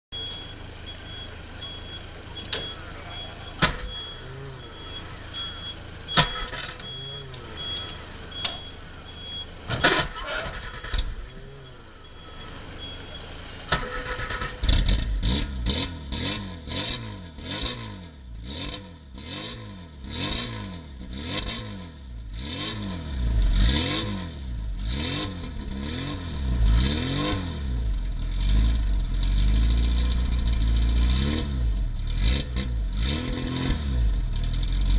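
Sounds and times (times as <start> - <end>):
engine revving blips: 0.1 - 34.9
car engine starting: 0.2 - 34.9
scattered clicks and knocks: 3.6 - 4.1.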